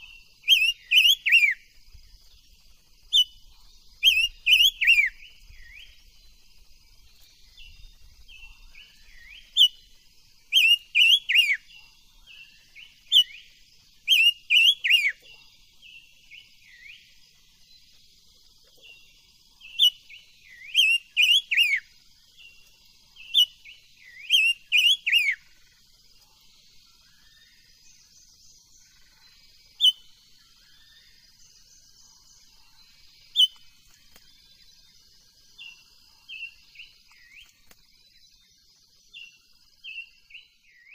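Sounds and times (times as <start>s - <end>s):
songbird whistling: 0.0s - 1.6s, 4.0s - 6.3s, 7.6s - 9.9s, 10.5s - 11.7s, 12.7s - 15.3s, 19.7s - 21.9s, 23.2s - 25.6s, 29.8s - 31.2s, 33.2s - 34.2s.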